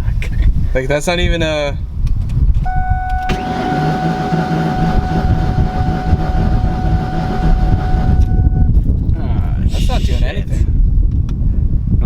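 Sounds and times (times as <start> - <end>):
engine starter cranking: 2.7 - 8.7.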